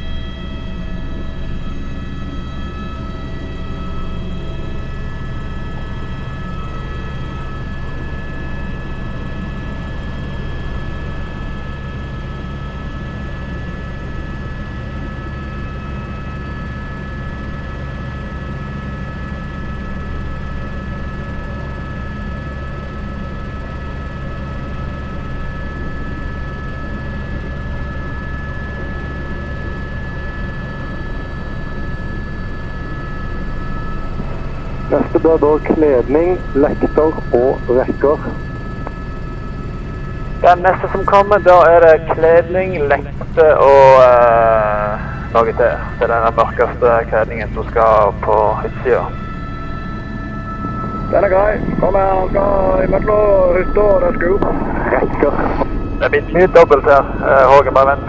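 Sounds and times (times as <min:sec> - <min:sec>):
helicopter rotor drone: 0:00.0 - 0:58.0
turbine high whine: 0:00.0 - 0:58.0.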